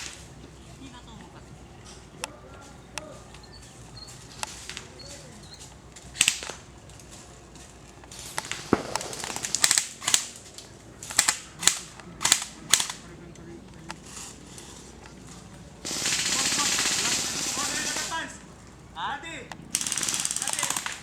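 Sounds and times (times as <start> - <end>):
airsoft gun shots popping: 6.1 - 6.8, 8.0 - 13.1.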